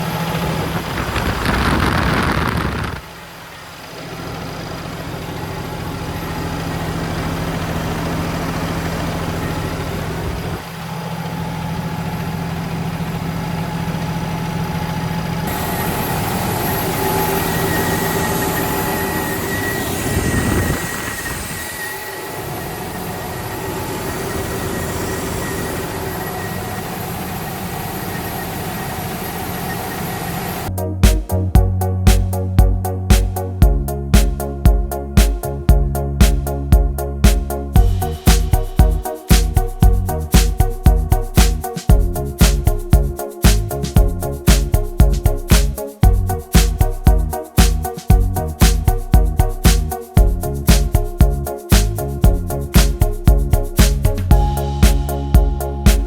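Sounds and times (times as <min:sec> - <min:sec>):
diesel truck engine humming: 0:03.3 - 0:20.8, 0:30.5 - 0:56.0.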